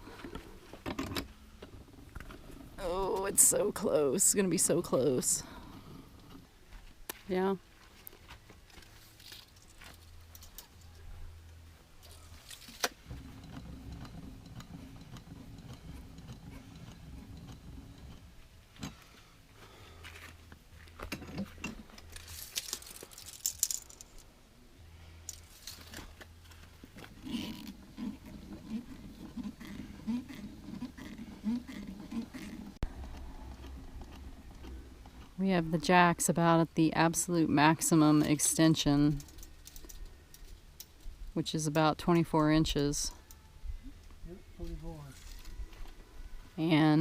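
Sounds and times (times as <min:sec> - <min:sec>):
rustling: 0:05.1 - 0:35.5.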